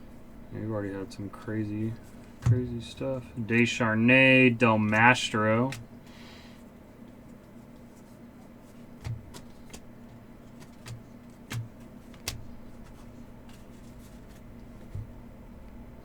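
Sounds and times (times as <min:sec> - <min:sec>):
steady low hum: 0:00.0 - 0:16.0
cards tapping and clicking: 0:02.0 - 0:03.8, 0:04.6 - 0:06.0, 0:07.1 - 0:15.2
soft thud: 0:02.4 - 0:02.8.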